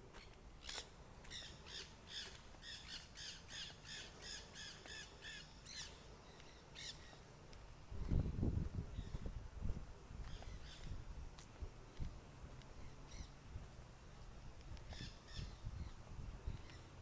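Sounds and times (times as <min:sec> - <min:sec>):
faint harsh bird calls: 0:00.2 - 0:07.2.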